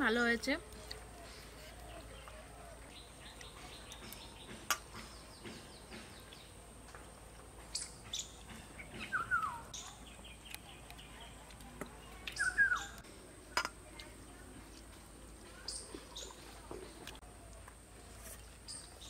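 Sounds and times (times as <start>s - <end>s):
whistled bird notes: 7.7s - 10.4s, 12.3s - 13.0s
high bird chirps: 7.7s - 11.2s, 12.3s - 13.0s.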